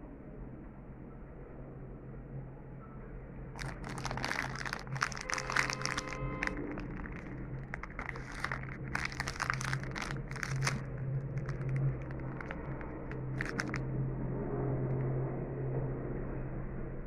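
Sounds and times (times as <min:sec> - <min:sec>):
plastic snack wrapper crinkling: 0:03.6 - 0:13.9.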